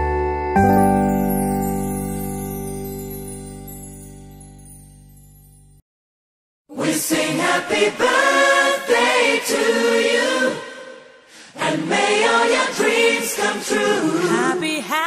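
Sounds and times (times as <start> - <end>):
voices singing unaccompanied: 6.7 - 15.0.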